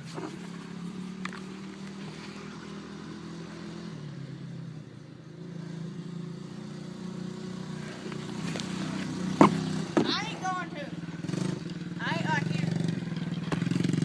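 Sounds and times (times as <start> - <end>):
dirt bike engine idling: 6.4 - 14.0.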